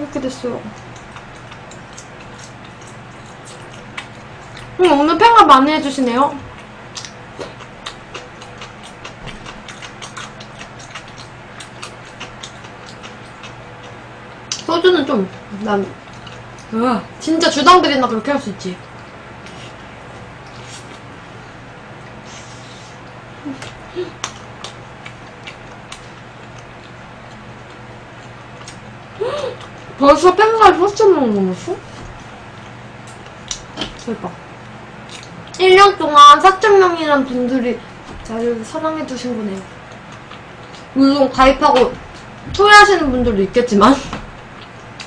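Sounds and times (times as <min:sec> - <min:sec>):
steady low hum: 0:00.0 - 0:45.0
wet chewing clicks and smacks: 0:00.7 - 0:04.8, 0:06.5 - 0:14.7, 0:16.0 - 0:16.7, 0:23.0 - 0:30.0, 0:32.1 - 0:35.6, 0:39.6 - 0:41.0, 0:44.4 - 0:45.0.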